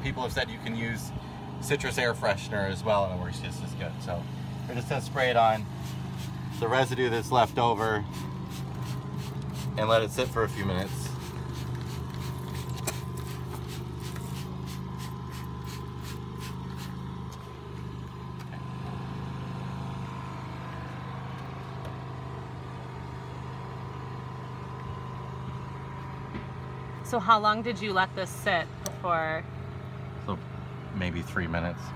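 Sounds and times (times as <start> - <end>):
low motor hum: 0.0 - 31.9
spray bottle spritzes: 5.7 - 6.7, 8.1 - 9.8, 10.9 - 17.0.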